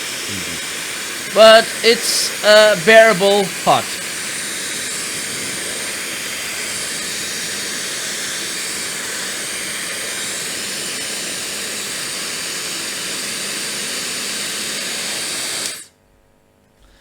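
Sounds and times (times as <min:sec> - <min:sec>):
hair dryer blowing air: 0:04.0 - 0:15.9.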